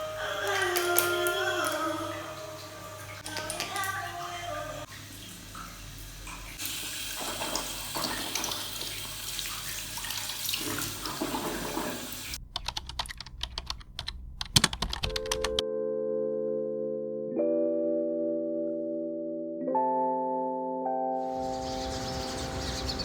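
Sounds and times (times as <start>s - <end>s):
music with held tones: 0.0s - 4.9s, 15.0s - 23.0s
tap water running into sink: 0.4s - 12.4s
sharp clicks and taps: 12.5s - 15.6s.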